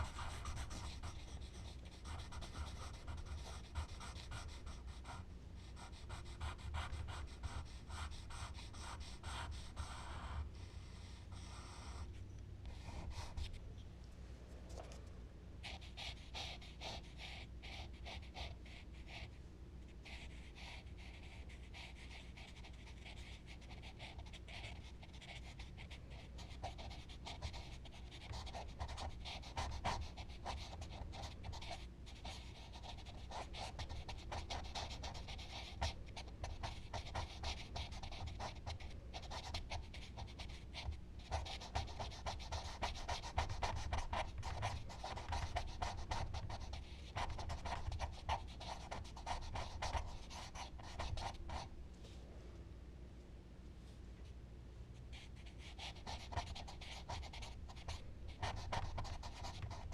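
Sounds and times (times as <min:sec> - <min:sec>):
charcoal scratching on paper: 0:00.0 - 0:05.1, 0:20.1 - 0:51.6, 0:55.2 - 0:59.9.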